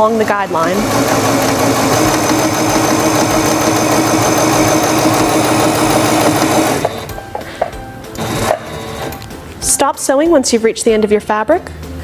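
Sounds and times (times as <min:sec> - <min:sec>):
sewing machine stitching: 0:00.0 - 0:07.1, 0:08.2 - 0:09.1.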